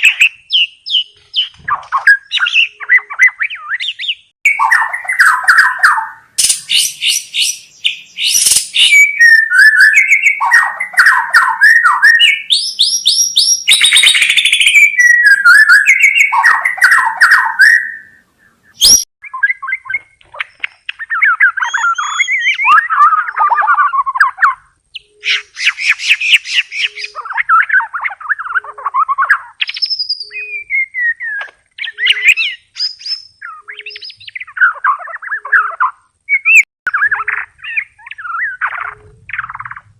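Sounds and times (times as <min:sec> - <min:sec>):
bird singing varied whistles and trills: 0:00.0 - 0:39.9.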